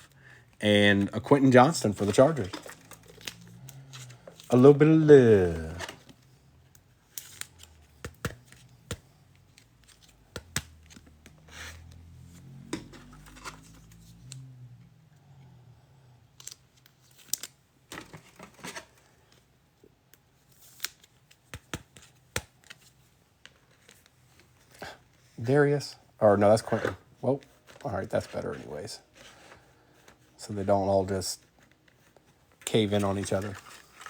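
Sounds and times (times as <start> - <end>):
cards clicking and sliding: 5.4 - 14.5
plastic wrap rustling: 32.7 - 34.0.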